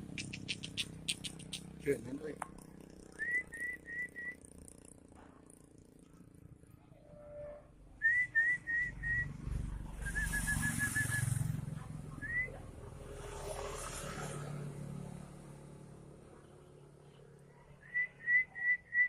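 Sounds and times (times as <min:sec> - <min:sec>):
short rising whistled notes: 0:10.0 - 0:11.3.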